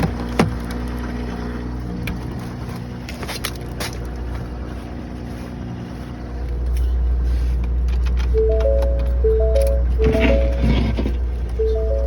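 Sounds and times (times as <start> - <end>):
diesel engine idling: 4.0 - 12.0.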